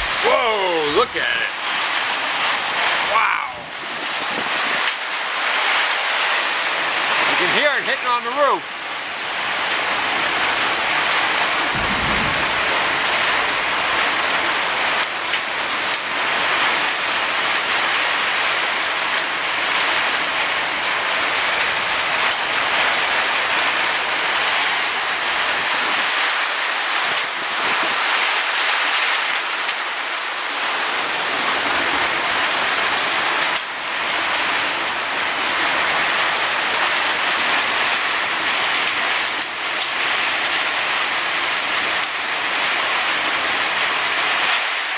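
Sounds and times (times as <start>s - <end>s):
hail and rain drumming on a roof: 0.0s - 44.9s
low rumble: 11.7s - 13.8s.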